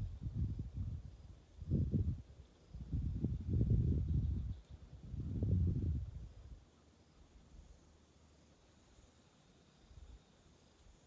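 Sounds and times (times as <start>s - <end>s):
wind buffeting microphone: 0.0s - 6.5s.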